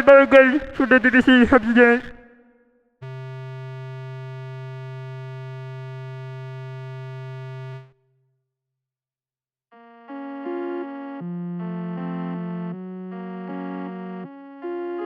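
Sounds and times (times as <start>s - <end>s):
synth chords: 10.1s - 15.0s.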